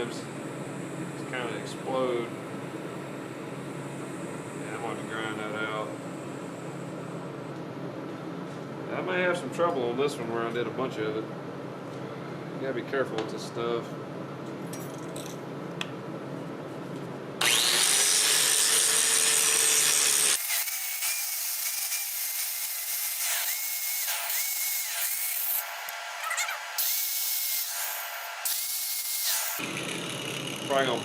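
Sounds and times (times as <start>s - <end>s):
high grinder whine: 17.4s - 31.0s
power grinder grinding metal: 17.4s - 31.0s.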